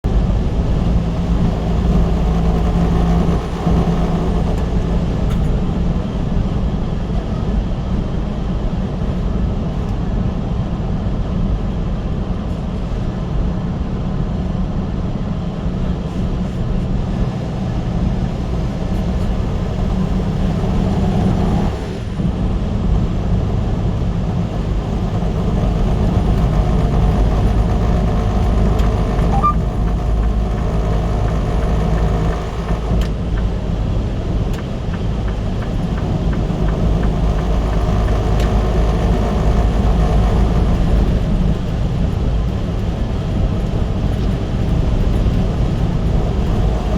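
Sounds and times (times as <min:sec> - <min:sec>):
vehicle engine and road noise: 0:00.0 - 0:46.9.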